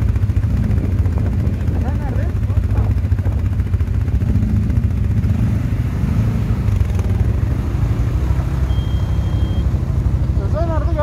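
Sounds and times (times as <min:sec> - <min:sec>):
atv engine droning: 0:00.0 - 0:11.0
thin high tone: 0:08.6 - 0:09.8.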